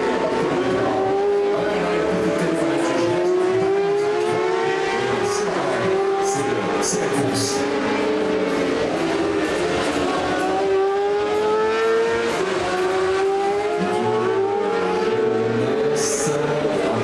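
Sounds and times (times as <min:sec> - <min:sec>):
racing motorcycles accelerating: 0:00.0 - 0:17.0.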